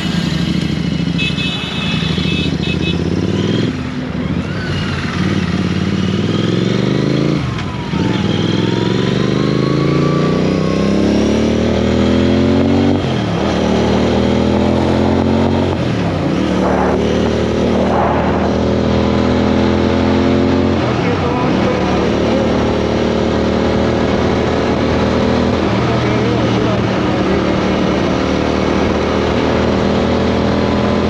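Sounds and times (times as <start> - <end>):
motorcycle engine accelerating: 0.0 - 1.3, 2.0 - 31.0
rush of wind: 11.6 - 31.0.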